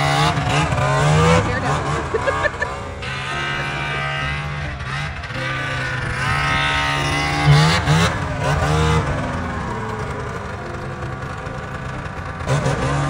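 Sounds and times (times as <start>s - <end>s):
snowmobile engine revving: 0.0s - 13.0s.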